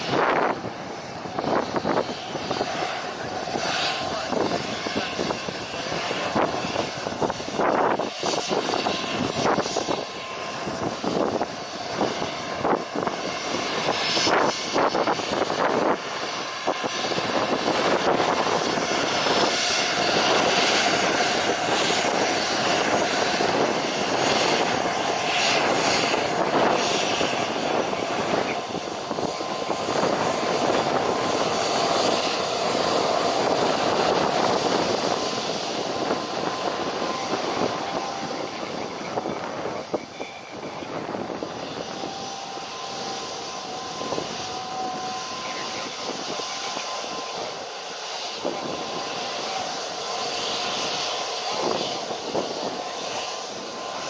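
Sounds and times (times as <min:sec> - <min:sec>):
aircraft engine rushing: 0:00.0 - 0:54.0
faint steady whine: 0:17.4 - 0:54.0.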